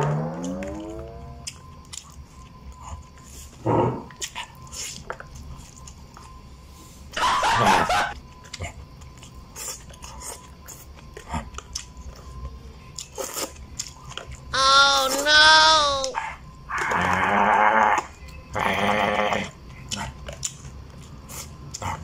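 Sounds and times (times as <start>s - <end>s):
person chewing crunchy food: 8.4s - 12.2s, 13.0s - 16.2s, 19.8s - 22.0s.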